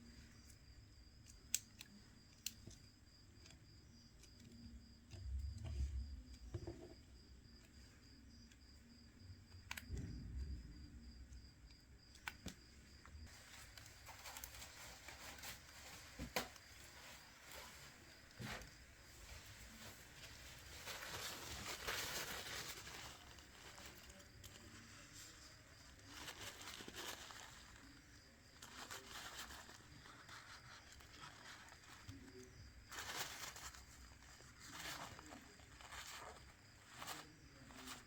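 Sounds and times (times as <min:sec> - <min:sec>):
small tool clicks and taps: 0:01.2 - 0:07.0.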